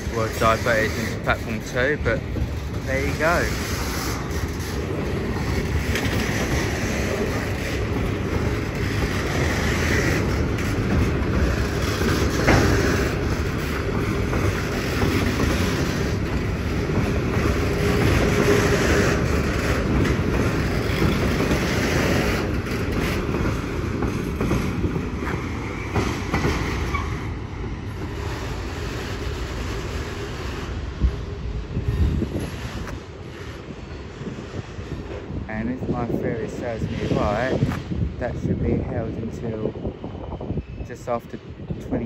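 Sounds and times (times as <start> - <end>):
wheels clicking over rail joints: 0.0 - 29.7
train wagons rumbling: 0.0 - 42.0.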